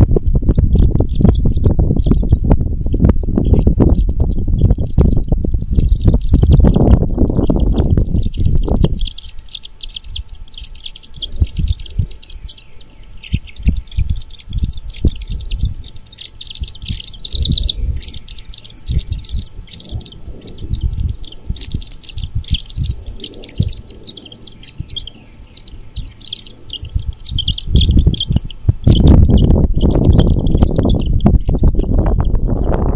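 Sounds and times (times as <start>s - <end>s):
birds chirping rapidly: 0.0s - 32.9s
loud low rumble: 0.0s - 32.9s
low thumps: 0.0s - 32.9s.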